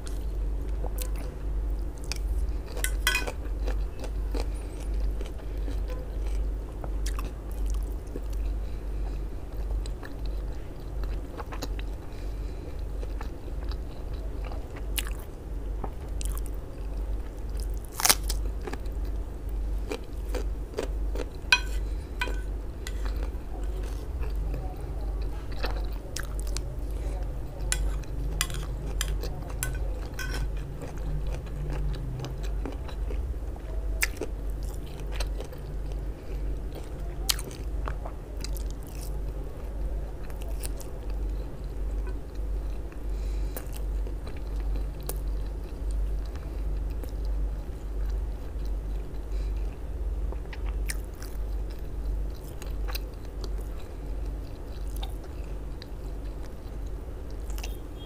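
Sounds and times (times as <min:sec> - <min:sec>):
chewing with wet mouth sounds: 0:00.0 - 0:58.0
low hum: 0:19.6 - 0:25.3.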